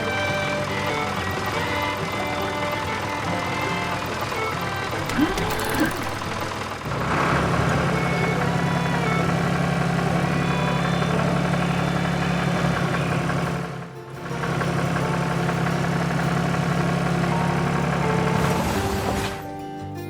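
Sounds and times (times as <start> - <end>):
tractor engine idling: 0.0 - 19.2.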